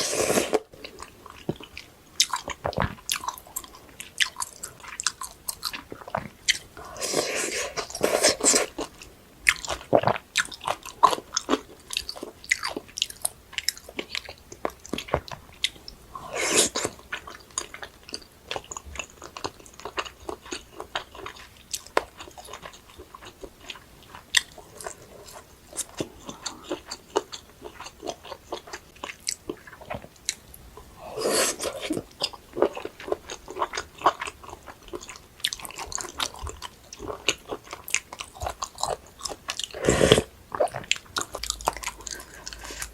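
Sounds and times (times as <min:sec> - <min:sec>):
chewing and biting: 0:31.4 - 0:42.9.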